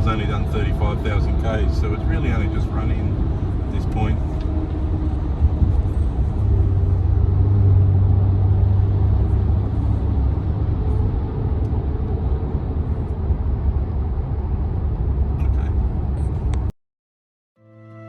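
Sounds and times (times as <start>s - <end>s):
car cabin road and engine hum: 0.0s - 16.7s.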